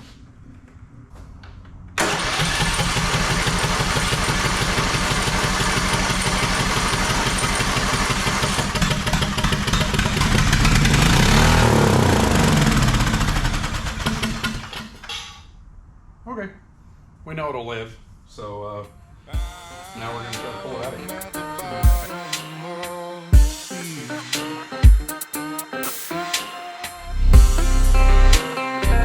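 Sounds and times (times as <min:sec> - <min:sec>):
riding mower engine running: 0:02.0 - 0:15.0.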